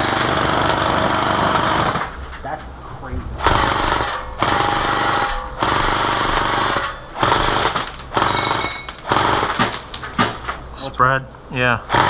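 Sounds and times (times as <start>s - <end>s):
airsoft gun firing full-auto: 0.0s - 2.1s, 3.4s - 10.3s.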